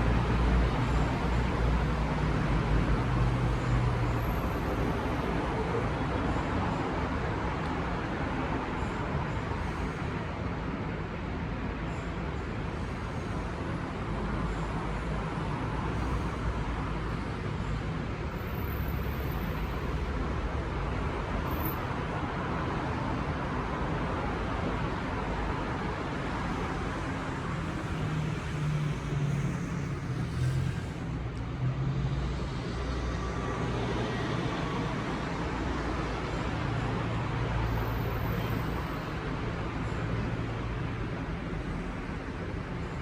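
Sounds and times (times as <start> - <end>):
road noise rushing: 0.0 - 43.0
vehicle engine hum: 24.7 - 43.0.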